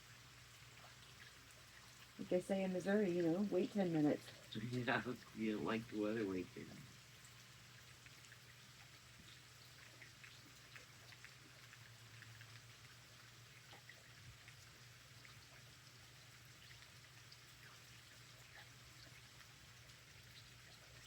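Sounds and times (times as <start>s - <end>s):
light rain drops ticking: 0.0s - 21.0s.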